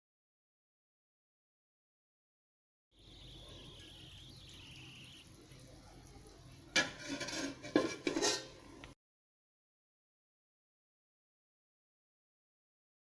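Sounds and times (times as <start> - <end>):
utensil scraping a pan: 6.7 - 8.9.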